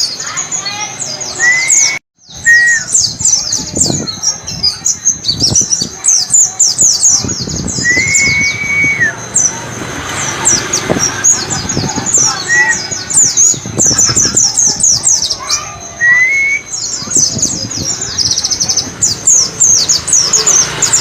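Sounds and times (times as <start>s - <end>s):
long level bird whistle: 1.4s - 3.2s, 7.8s - 9.2s, 15.5s - 17.1s.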